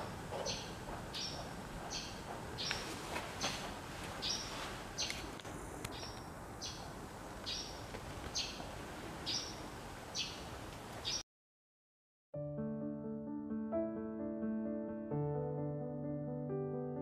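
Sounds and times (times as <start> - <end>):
bird chirping: 0.0 - 3.6, 4.2 - 5.2, 5.9 - 11.2
outdoor background noise: 0.0 - 11.2.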